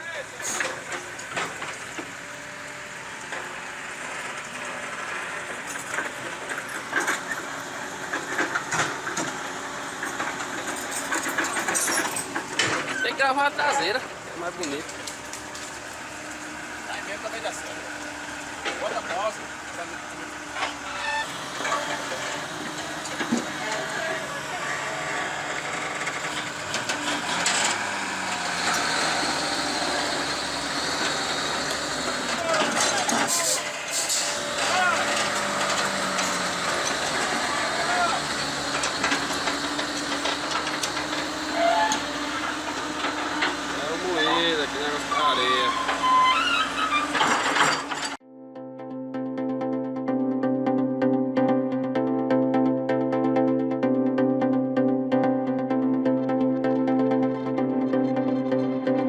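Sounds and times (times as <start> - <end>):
heavy vehicle engine running: 0.0 - 48.2, 49.1 - 59.0
metallic knocks and rattles: 10.0 - 13.0.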